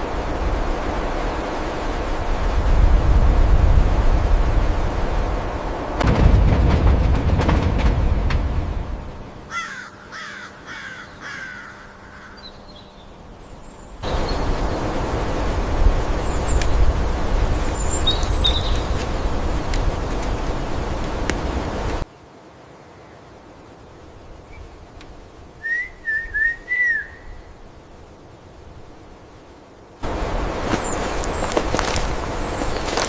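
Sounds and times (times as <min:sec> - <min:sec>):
steady outdoor noise: 0:00.0 - 0:33.0
bird calling falling in pitch: 0:09.5 - 0:12.6, 0:25.6 - 0:27.4.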